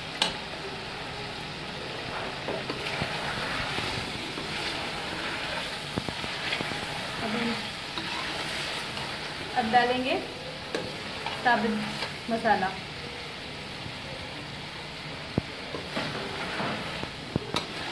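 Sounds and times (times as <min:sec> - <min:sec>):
curry sizzling in metal pot: 0:00.0 - 0:17.9.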